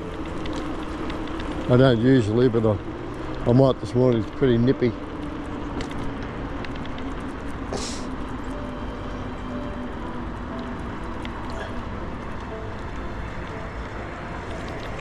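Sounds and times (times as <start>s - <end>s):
bicycle rolling noise: 0.0s - 15.0s
wind rush while cycling: 0.0s - 15.0s.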